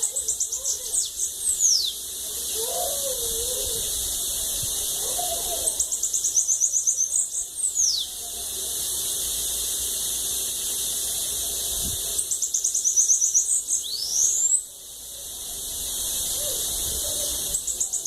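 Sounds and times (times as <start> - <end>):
bird singing high thin notes: 0.0 - 2.0, 12.2 - 14.6
steady high hiss: 0.0 - 18.0.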